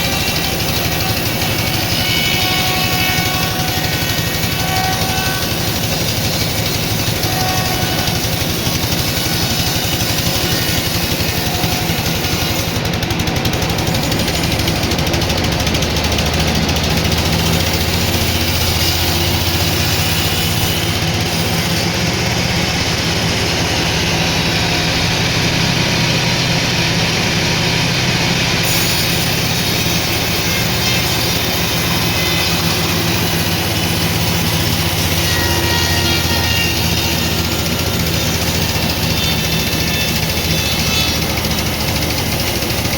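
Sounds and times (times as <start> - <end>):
sawmill machinery running: 0.0 - 42.9.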